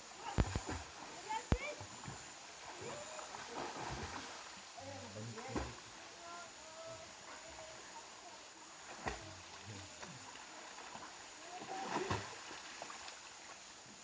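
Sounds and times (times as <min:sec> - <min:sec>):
river water flowing: 0:00.0 - 0:14.0
sharp splashes or knocks: 0:00.2 - 0:00.8.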